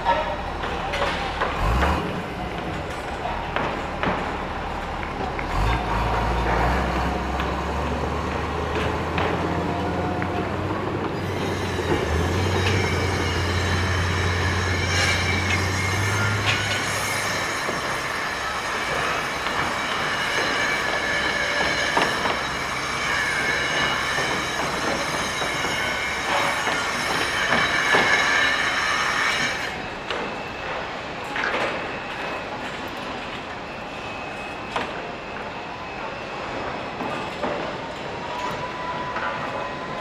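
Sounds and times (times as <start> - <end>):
high-pitched metallic squealing: 0.0 - 40.0.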